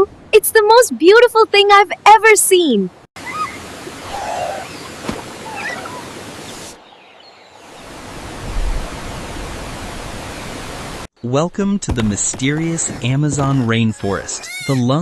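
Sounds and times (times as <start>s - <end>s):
rushing water: 3.2s - 11.1s.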